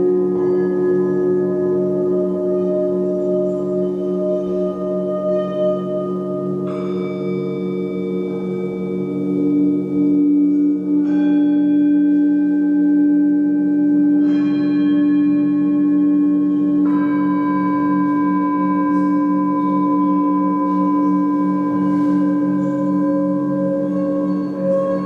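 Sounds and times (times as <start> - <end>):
metal percussion ringing: 0.0 - 12.2.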